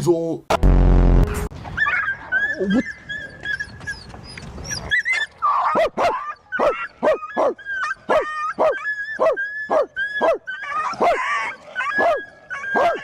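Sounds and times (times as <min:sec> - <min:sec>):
dog whining: 0:01.8 - 0:13.0
dog barking rapidly: 0:05.5 - 0:13.0.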